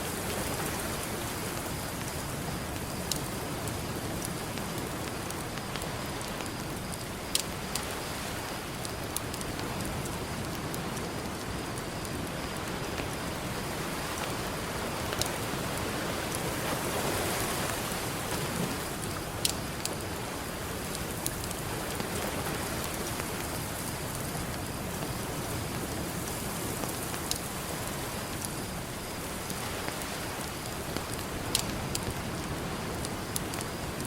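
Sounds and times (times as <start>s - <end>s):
campfire crackling and popping: 0.1s - 34.0s.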